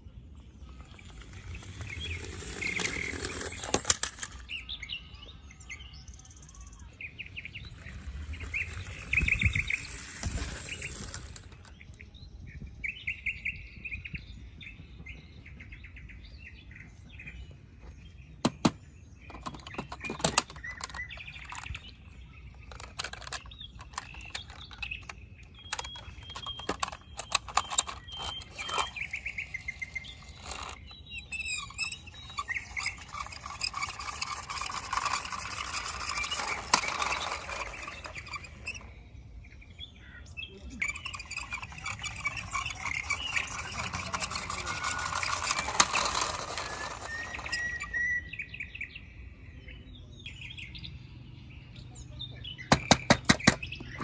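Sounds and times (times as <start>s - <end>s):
birds chirping: 0.0s - 54.0s
sharp clicks and knocks: 18.4s - 22.0s, 22.6s - 30.9s, 52.7s - 54.0s.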